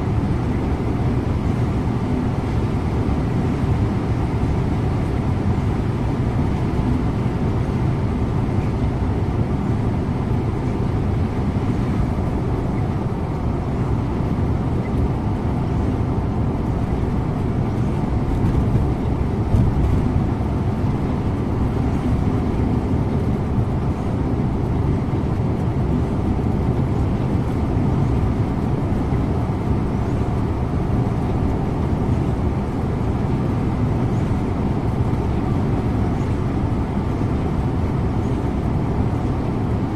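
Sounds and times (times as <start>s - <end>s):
bus engine and tyre rumble: 0.0s - 39.9s.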